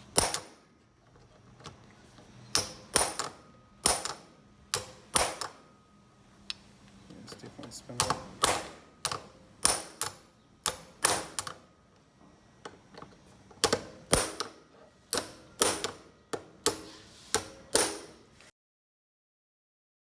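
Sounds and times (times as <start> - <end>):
hammer striking metal: 4.8 - 5.6, 16.7 - 18.2.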